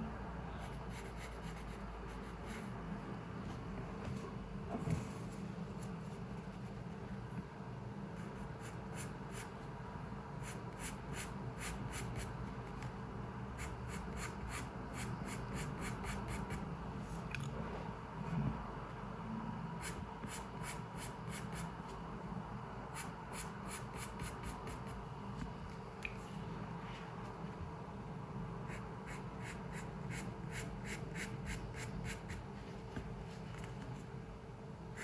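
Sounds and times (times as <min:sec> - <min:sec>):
low room hum: 0:00.0 - 0:35.0
pencil scratching on paper: 0:00.6 - 0:02.8, 0:10.4 - 0:12.4, 0:13.6 - 0:16.6, 0:22.9 - 0:25.0, 0:28.7 - 0:32.5.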